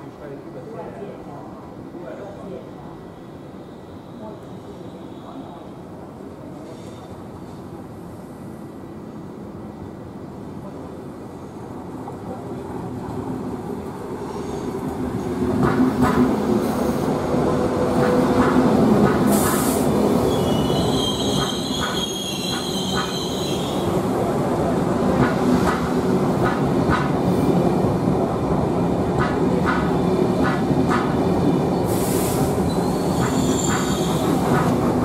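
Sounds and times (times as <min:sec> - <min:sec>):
train rumbling: 0:05.5 - 0:35.0
short hiss: 0:19.3 - 0:19.9, 0:31.9 - 0:32.6
high wheel squeal: 0:20.2 - 0:23.8, 0:32.7 - 0:34.4.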